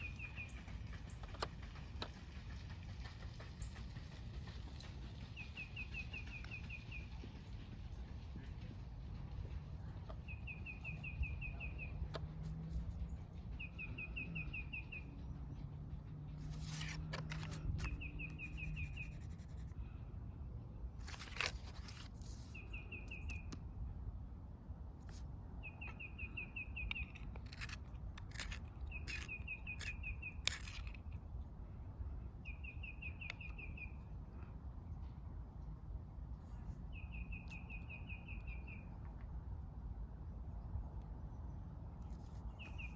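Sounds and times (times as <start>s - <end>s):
low steady hum: 0.0s - 42.9s
coloring strokes on paper: 18.4s - 19.8s.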